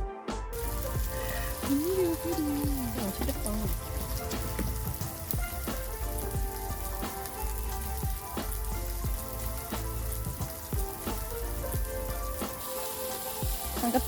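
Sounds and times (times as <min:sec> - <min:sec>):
food sizzling on a grill: 0:00.6 - 0:14.0
wood fire popping and spitting: 0:00.6 - 0:14.0.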